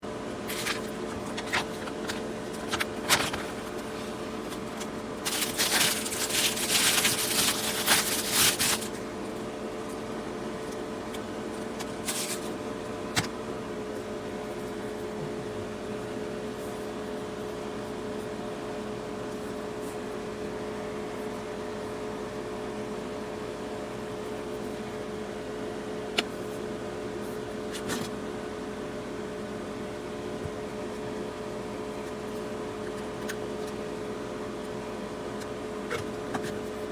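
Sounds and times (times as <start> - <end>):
steady electrical hum: 0.0 - 36.9
rustling: 5.3 - 9.0.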